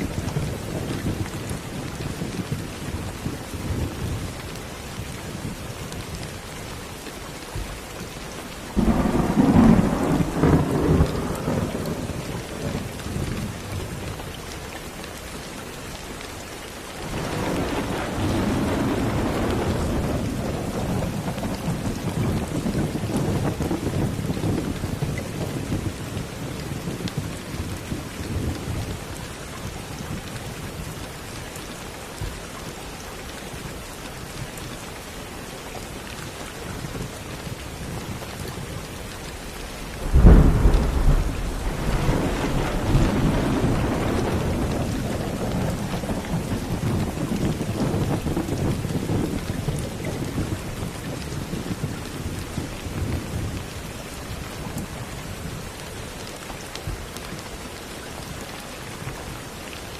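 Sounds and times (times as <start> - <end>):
steady rain: 0.0 - 59.9
rolling thunder: 8.7 - 13.7, 17.1 - 26.0, 39.4 - 53.8.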